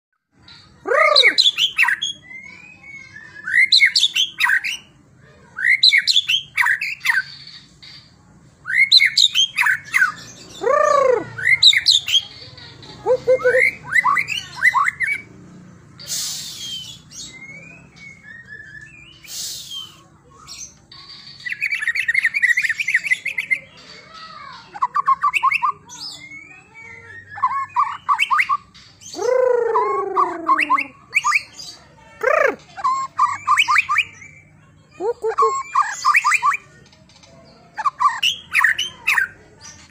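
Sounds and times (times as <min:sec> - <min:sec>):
harsh rasping bird calls: 0:00.4 - 0:04.9, 0:16.0 - 0:39.9
birds singing whistled phrases: 0:00.4 - 0:15.3, 0:16.0 - 0:39.9.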